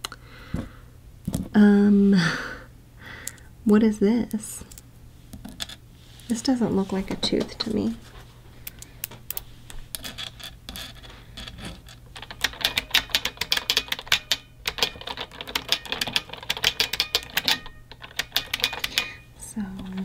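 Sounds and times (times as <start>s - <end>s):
typing on mechanical keyboard: 12.2s - 19.1s.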